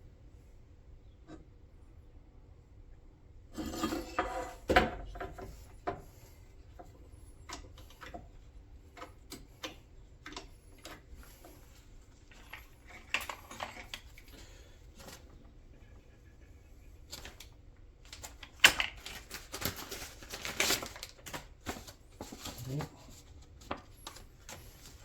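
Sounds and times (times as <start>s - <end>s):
metal parts and tools rattling: 12.3s - 14.3s.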